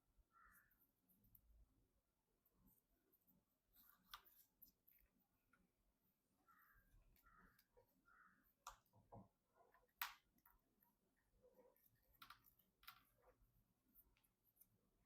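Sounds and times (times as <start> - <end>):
faint clicks and taps: 3.7 - 5.8, 7.1 - 14.8.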